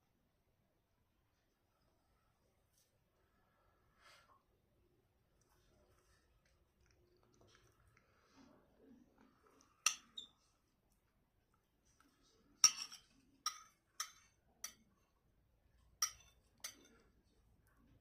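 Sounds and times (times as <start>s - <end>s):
faint chewing: 5.3s - 18.0s
cutlery clinking on a plate: 9.8s - 10.3s, 12.6s - 14.9s, 15.9s - 17.1s.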